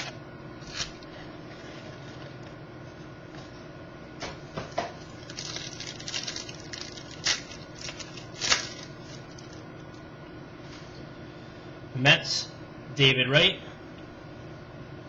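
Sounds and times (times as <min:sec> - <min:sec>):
cards crinkling and rustling: 0:05.2 - 0:09.6.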